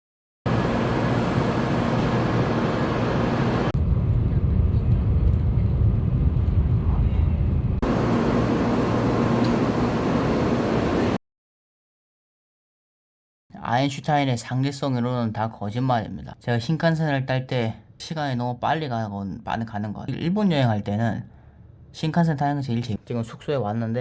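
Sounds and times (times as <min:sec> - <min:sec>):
train rumbling at speed: 0:00.5 - 0:11.2.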